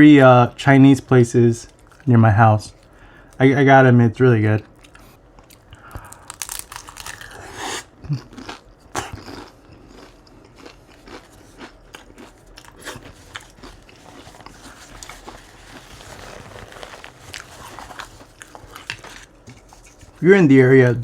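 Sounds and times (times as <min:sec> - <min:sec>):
chewing crunchy food: 0:01.7 - 0:02.1, 0:04.6 - 0:20.2.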